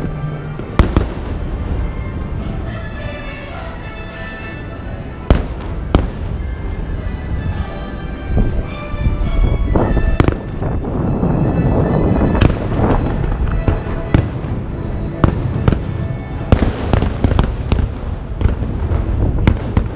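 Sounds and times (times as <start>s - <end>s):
fireworks bangs: 0.0s - 2.9s, 5.3s - 6.5s, 9.7s - 11.0s, 12.0s - 19.9s
low rumble: 4.8s - 19.9s.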